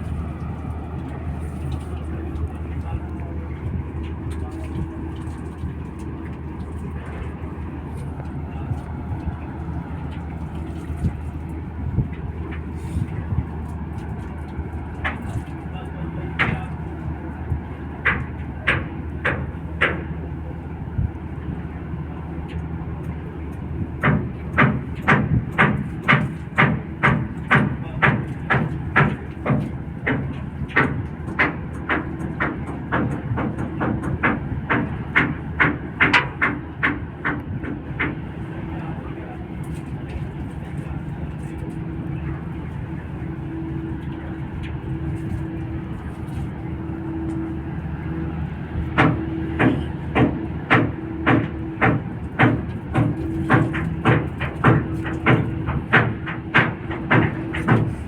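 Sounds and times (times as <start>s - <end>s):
diesel engine drone: 0.0s - 58.0s
faint engine knocks: 0.0s - 58.0s
steady low hum: 0.0s - 58.0s
rhythmic mechanical clacking: 48.1s - 58.0s.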